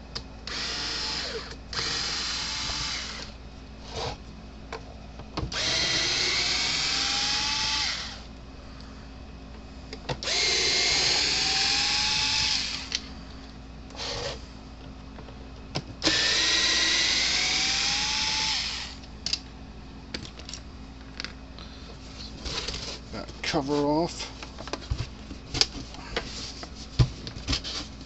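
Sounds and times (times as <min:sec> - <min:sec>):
screw gun motor whine: 0:00.4 - 0:03.4, 0:05.5 - 0:08.3, 0:10.2 - 0:13.1, 0:16.0 - 0:19.0.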